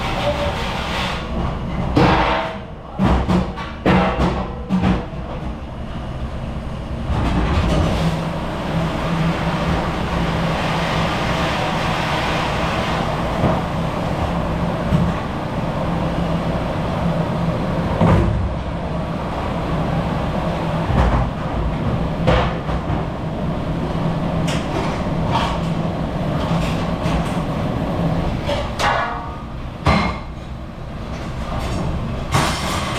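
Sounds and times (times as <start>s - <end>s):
machine humming and hissing: 5.7s - 28.6s.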